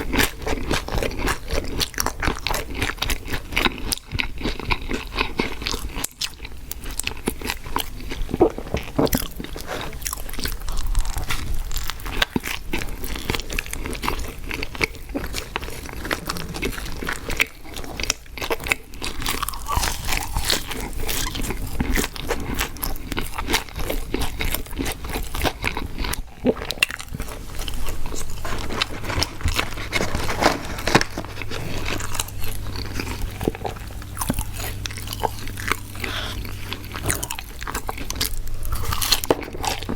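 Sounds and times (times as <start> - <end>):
crunching and wet chewing: 0.0 - 39.9.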